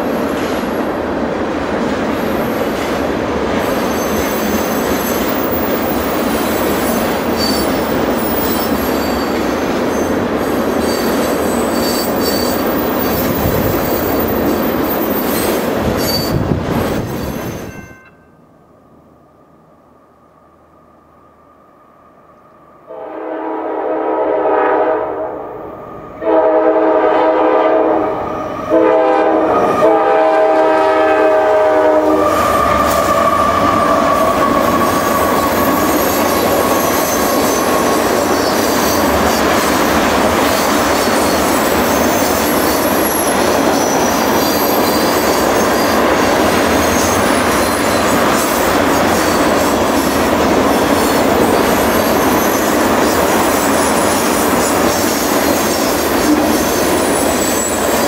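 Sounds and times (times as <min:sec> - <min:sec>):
train wheels rumbling on rail: 0:00.0 - 0:18.2, 0:23.6 - 0:58.0
locomotive air horn blasts: 0:22.9 - 0:25.5, 0:26.2 - 0:33.6.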